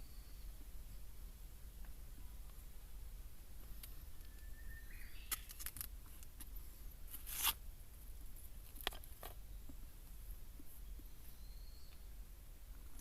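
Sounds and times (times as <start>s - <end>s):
crinkling: 5.3s - 6.5s
tearing rustle: 7.1s - 7.6s.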